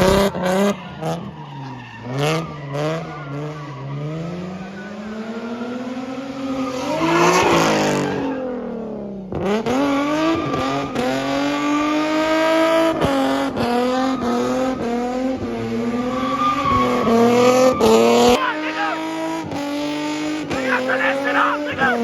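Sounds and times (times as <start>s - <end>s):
tire squeal: 0.3s - 5.6s, 6.4s - 8.6s, 15.8s - 18.3s.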